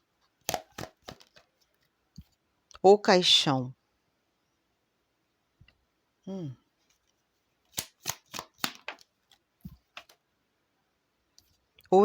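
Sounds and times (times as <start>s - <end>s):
cards clicking: 0.4s - 1.5s, 7.7s - 9.1s, 9.7s - 10.2s.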